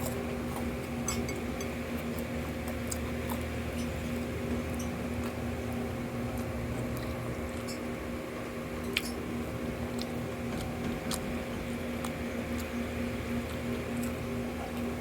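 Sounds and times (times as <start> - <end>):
wet chewing and smacking: 0.0 - 7.8, 8.4 - 15.0.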